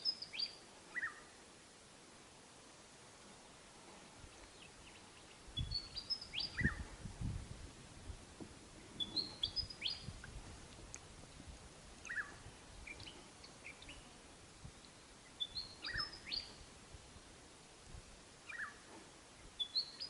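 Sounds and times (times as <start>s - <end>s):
short bird chirps: 9.0s - 10.1s, 15.4s - 16.6s.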